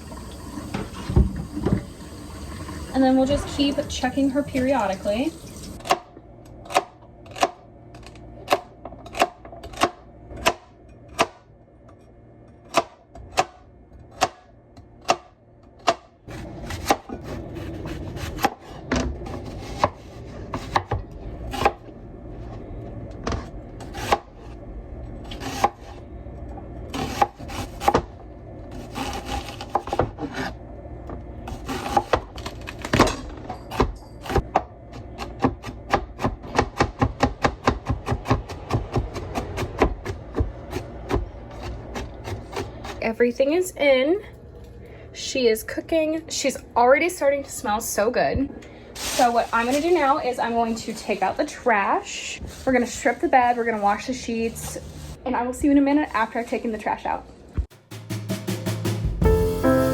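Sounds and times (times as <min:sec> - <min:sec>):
knife chopping on wooden board: 0:33.8 - 0:43.0
scraping and rustling: 0:49.0 - 0:51.5.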